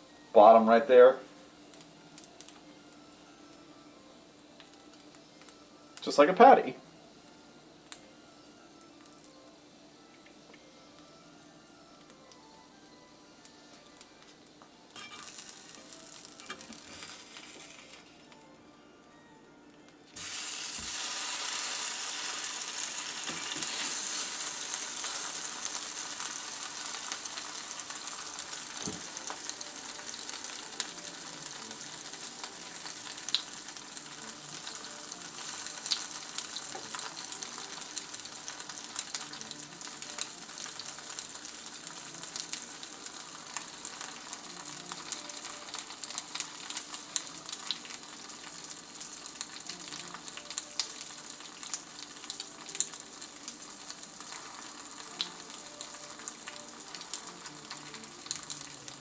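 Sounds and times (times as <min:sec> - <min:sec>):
patties sizzling in a pan: 0:00.4 - 0:18.3, 0:20.2 - 0:59.0.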